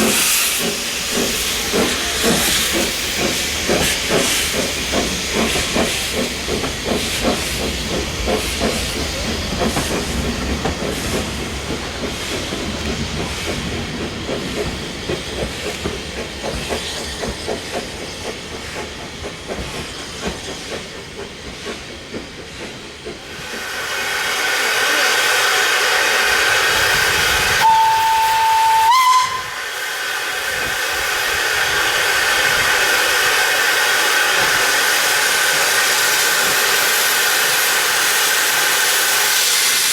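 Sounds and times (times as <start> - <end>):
hiss of escaping steam: 0.0 - 39.9
steam locomotive exhaust beats: 0.0 - 39.9
steam whistle blast: 27.6 - 29.8.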